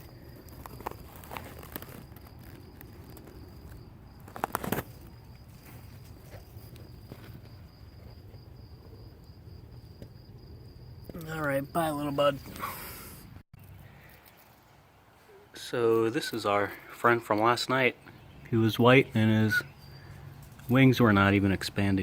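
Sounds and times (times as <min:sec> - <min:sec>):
rustling: 0:00.0 - 0:09.1
insect trill: 0:00.0 - 0:13.4, 0:17.4 - 0:22.0.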